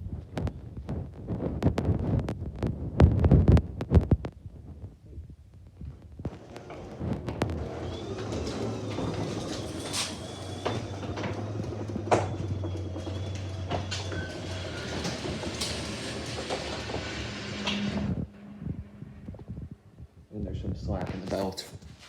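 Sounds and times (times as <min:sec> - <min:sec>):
garage door rattling and clicking: 0:06.3 - 0:18.1
garage door opener motor hum: 0:06.3 - 0:19.3
rollers squealing: 0:07.6 - 0:18.5.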